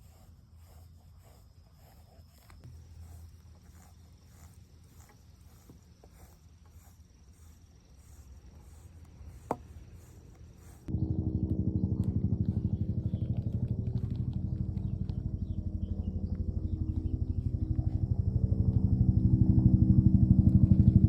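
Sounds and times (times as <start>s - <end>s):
brush strokes through fur: 0.0s - 10.9s
low steady rumble: 0.0s - 21.0s.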